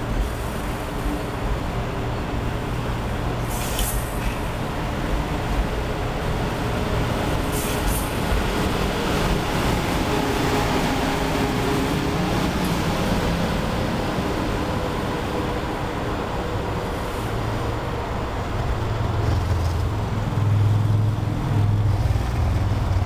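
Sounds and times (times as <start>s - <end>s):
train rush of wheels and air: 0.0s - 23.0s.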